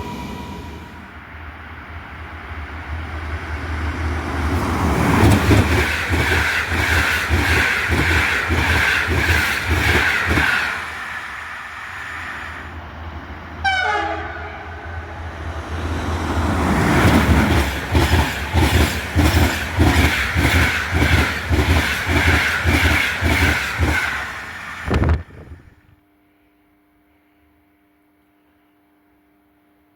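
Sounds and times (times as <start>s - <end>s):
train rushing past: 0.0s - 25.7s
train horn blast: 13.6s - 15.2s.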